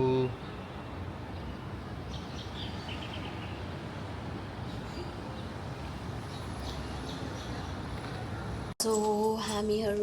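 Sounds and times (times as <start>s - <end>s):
birds chirping: 0.0s - 8.8s.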